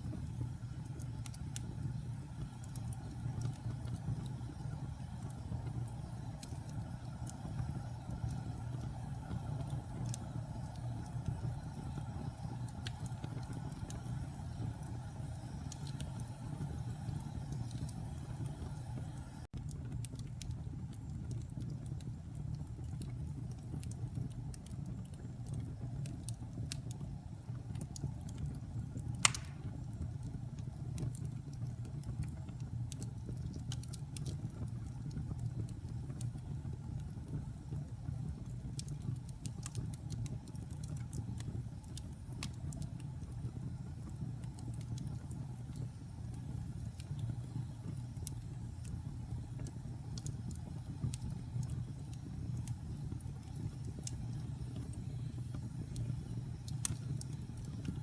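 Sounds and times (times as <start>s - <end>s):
wood fire burning: 0.0s - 58.0s
loud pop: 29.2s - 29.7s.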